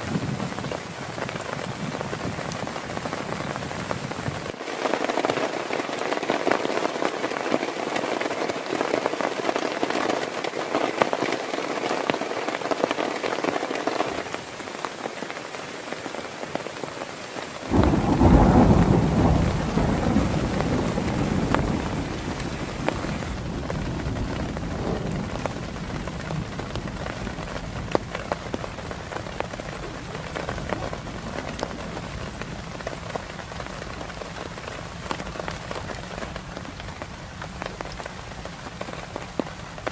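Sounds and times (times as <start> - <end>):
heavy rain falling: 0.0 - 39.9
thunder rumble: 17.7 - 39.9.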